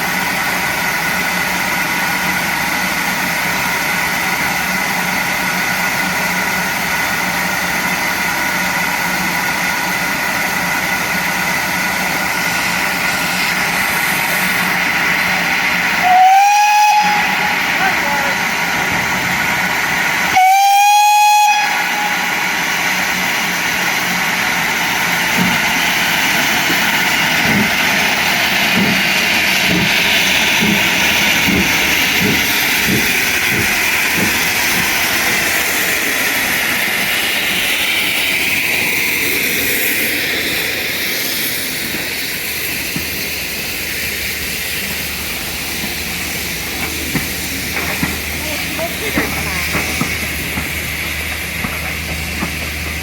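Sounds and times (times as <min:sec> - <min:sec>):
train hissing: 0:00.0 - 0:53.0
steam locomotive whistle: 0:16.0 - 0:18.4, 0:20.3 - 0:22.4
low thumps of train: 0:18.4 - 0:20.4, 0:21.6 - 0:53.0.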